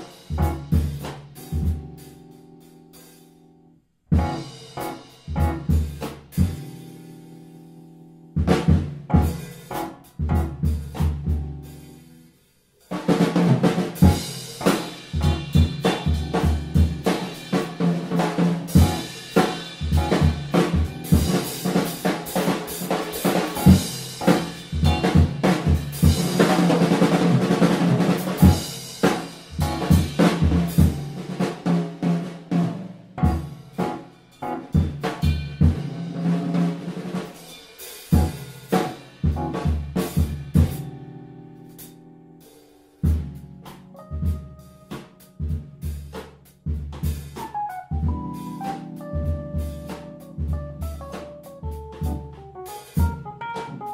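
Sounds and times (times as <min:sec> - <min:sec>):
drum kit playing: 0:00.0 - 0:03.4, 0:04.1 - 0:53.9
band playing music: 0:47.4 - 0:53.9.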